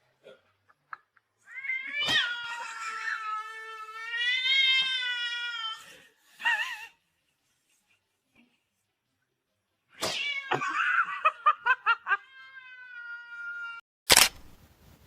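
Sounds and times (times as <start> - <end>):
cat meowing: 1.5 - 5.9, 12.1 - 13.8.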